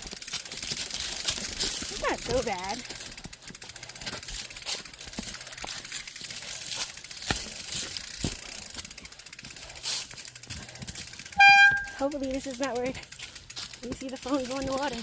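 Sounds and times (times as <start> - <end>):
bike bumping over ground: 0.0 - 9.3
bike freewheel clicking: 0.0 - 15.0.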